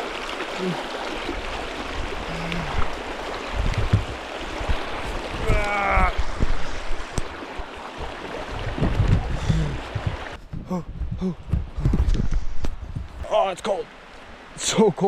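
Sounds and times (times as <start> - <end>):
river rushing and splashing: 0.0 - 10.4
low thumps and knocks: 2.7 - 7.7, 8.6 - 13.3.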